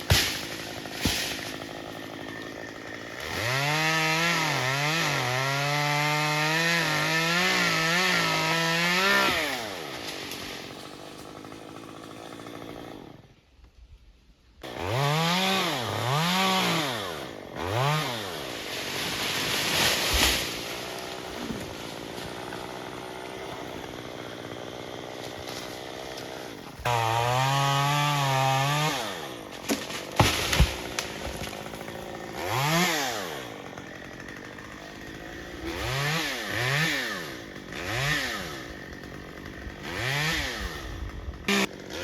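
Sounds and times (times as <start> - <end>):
chainsaw throttle blips: 0.0 - 13.2, 30.1 - 42.0
chainsaw cutting branches: 0.0 - 13.7, 14.6 - 42.0.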